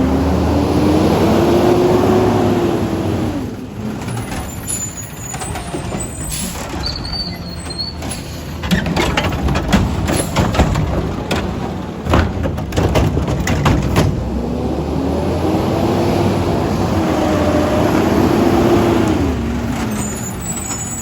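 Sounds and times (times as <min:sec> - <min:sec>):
garbage truck running: 0:00.0 - 0:21.0
knocks and clatter: 0:03.9 - 0:14.4
high squeal: 0:04.2 - 0:08.6, 0:19.8 - 0:21.0.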